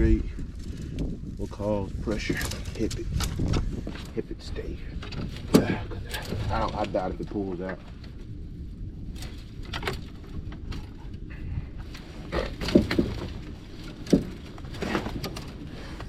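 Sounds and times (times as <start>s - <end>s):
low steady rumble: 0.0s - 16.0s
rope and brush rustling: 0.0s - 16.0s.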